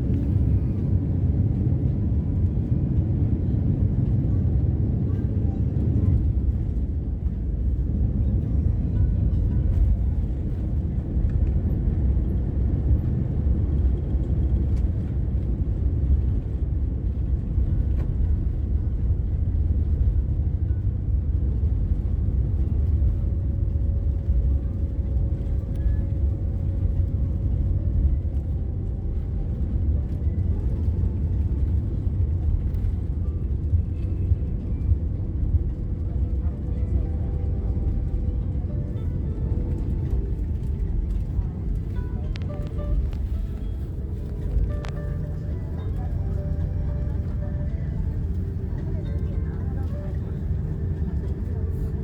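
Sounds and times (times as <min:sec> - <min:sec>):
airliner cabin noise: 0:00.0 - 0:52.0
faint steady whine: 0:00.0 - 0:52.0.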